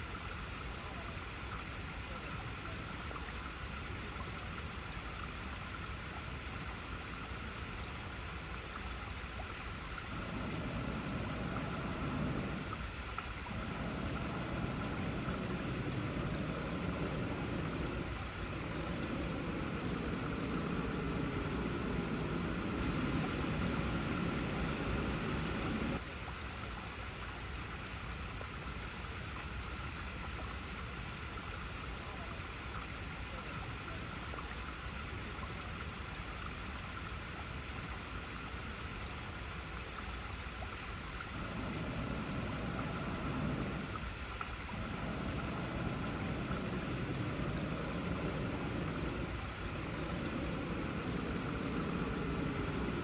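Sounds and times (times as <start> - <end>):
water rushing over rocks: 0.0 - 28.6, 40.4 - 53.0
deeper water rushing: 0.0 - 53.0.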